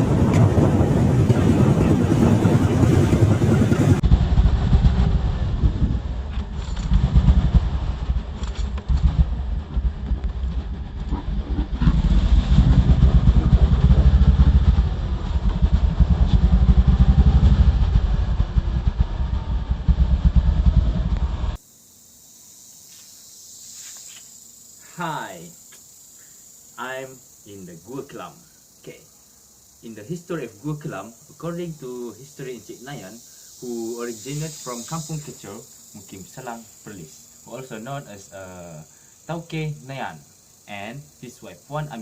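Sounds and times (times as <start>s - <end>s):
vehicle engine rumbling: 0.0s - 21.6s.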